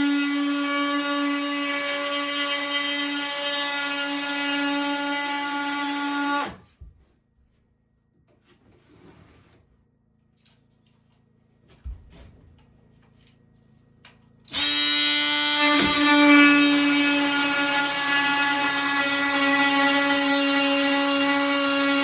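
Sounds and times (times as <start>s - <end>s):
power tool whining: 0.0s - 6.6s, 14.5s - 22.0s.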